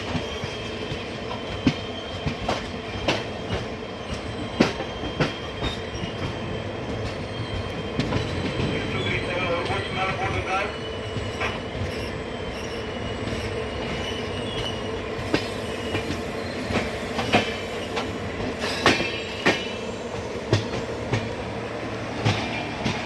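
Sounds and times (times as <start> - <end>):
train rumble: 0.0 - 23.0
train wheels clacking on rail joints: 0.0 - 23.0.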